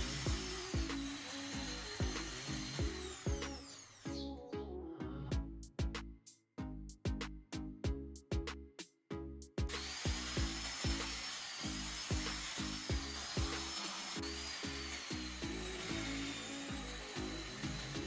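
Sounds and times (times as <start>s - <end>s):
music with a steady beat: 0.0s - 4.2s, 5.3s - 11.2s, 12.1s - 13.8s, 15.1s - 18.0s
power tool whining on wood: 0.0s - 4.2s, 9.7s - 18.0s.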